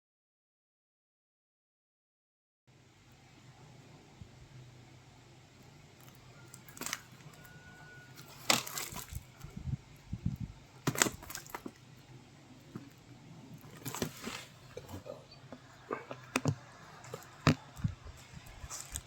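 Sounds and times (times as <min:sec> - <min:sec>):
packaging crackling: 0:06.0 - 0:09.5, 0:10.8 - 0:11.8, 0:13.6 - 0:14.8.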